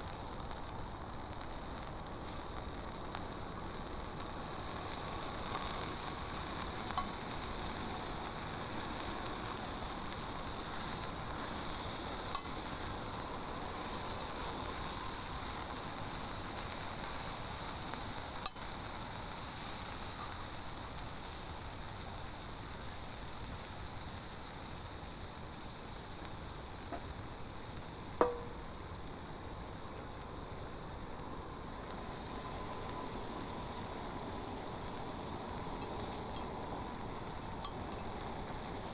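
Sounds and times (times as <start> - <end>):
steak sizzling on griddle: 0.0 - 38.9
metallic clink: 28.2 - 28.6
sharp pops: 28.2 - 28.7.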